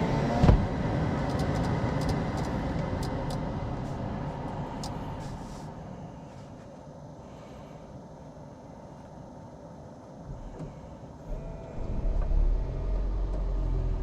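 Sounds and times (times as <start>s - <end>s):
thump: 0.4s - 0.7s
car engine running: 9.3s - 14.0s.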